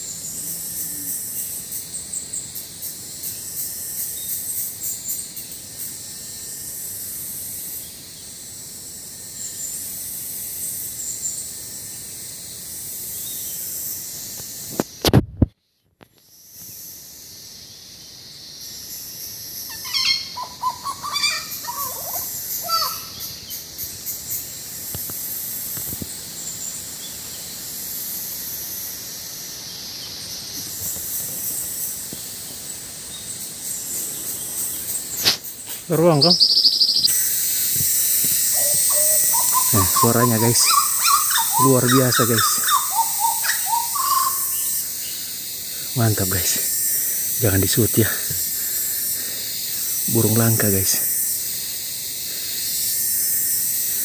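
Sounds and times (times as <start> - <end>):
insects hissing: 0.0 - 54.0
bird singing varied notes: 19.7 - 23.6, 36.0 - 37.2, 38.4 - 45.3.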